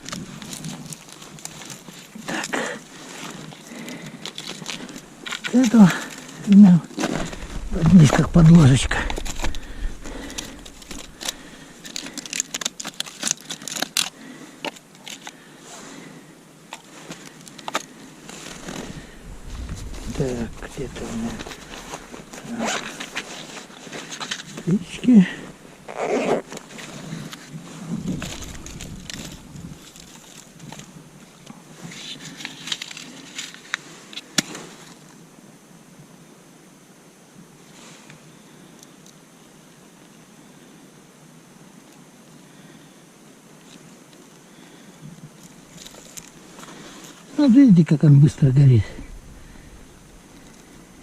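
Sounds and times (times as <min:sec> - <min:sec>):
kindling crackling and snapping: 0:00.0 - 0:16.0, 0:16.7 - 0:34.6, 0:45.2 - 0:51.0.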